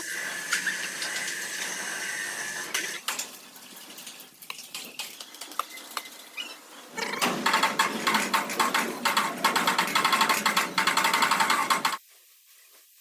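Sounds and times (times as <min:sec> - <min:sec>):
steady hiss: 0:11.9 - 0:13.0.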